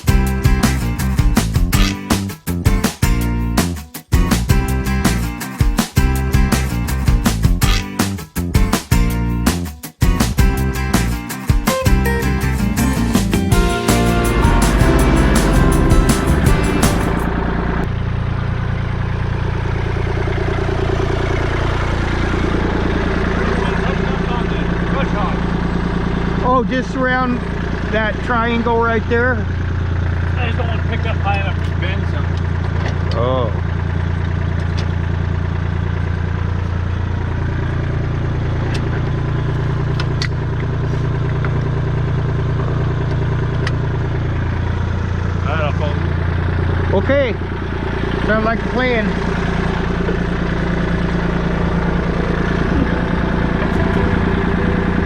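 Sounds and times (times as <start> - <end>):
background music: 0.1 - 17.4
vehicle engine idling: 11.8 - 55.0.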